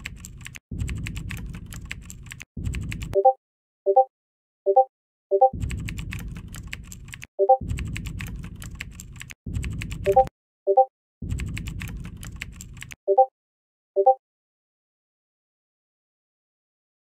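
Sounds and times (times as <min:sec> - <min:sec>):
keyboard typing: 0:00.0 - 0:03.4, 0:04.8 - 0:13.3
low rumble: 0:00.7 - 0:03.2, 0:05.6 - 0:06.9, 0:07.6 - 0:10.2.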